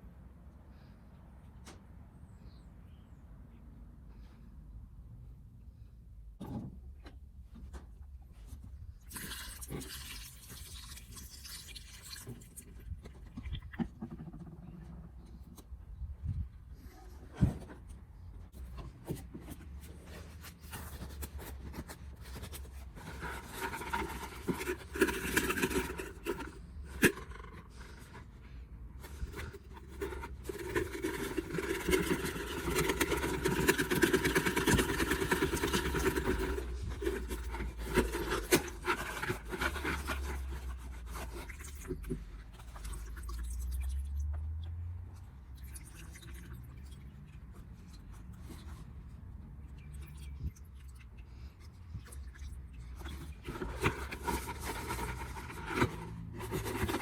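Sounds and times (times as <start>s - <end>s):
scraping and rubbing: 16.8s - 43.5s, 52.4s - 57.0s.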